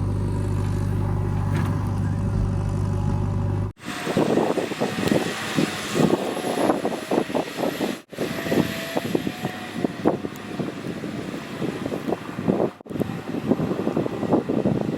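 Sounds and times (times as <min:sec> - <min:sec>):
vehicle engine chattering: 0:00.0 - 0:03.8.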